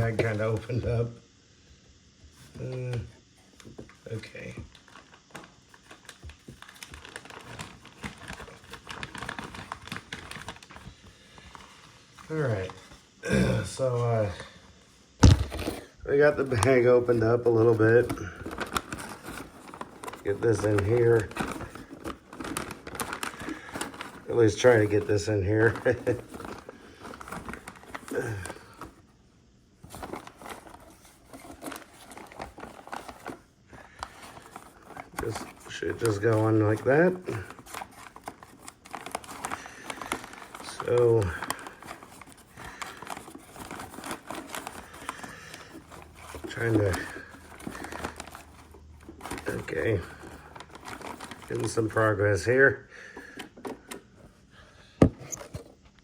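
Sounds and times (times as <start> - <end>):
paper crinkling and rustling: 0.0 - 0.9, 3.5 - 13.0, 15.2 - 29.1, 29.8 - 54.4.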